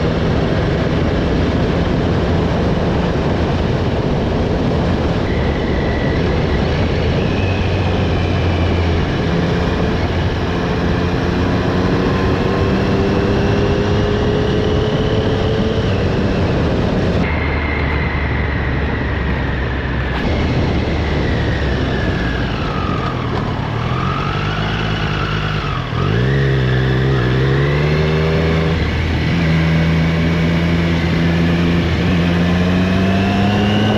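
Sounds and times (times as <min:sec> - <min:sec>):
motorcycle engine: 0:00.0 - 0:33.9.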